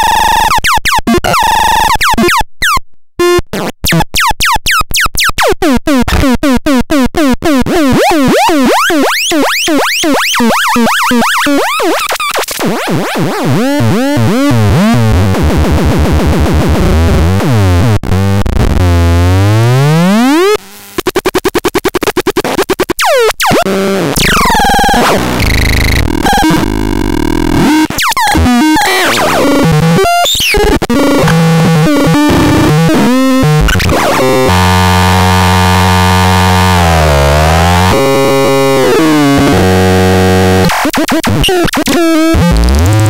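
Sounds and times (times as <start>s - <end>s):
synthesizer warbling tones: 23.0s - 40.9s.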